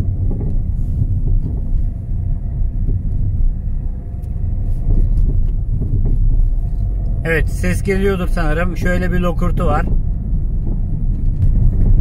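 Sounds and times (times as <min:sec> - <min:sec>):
car cabin road rumble: 0:00.0 - 0:12.0
suspension clunks: 0:00.0 - 0:12.0.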